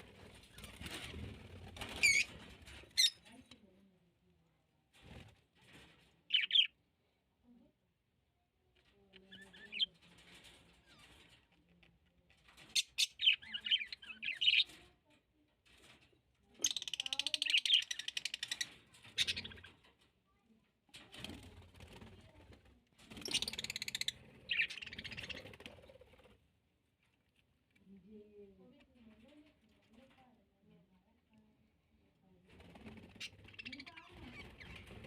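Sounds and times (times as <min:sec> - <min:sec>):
birds chirping: 0:06.3 - 0:06.8, 0:09.2 - 0:10.0, 0:12.6 - 0:14.8, 0:16.6 - 0:19.8, 0:23.1 - 0:25.7, 0:33.1 - 0:35.0.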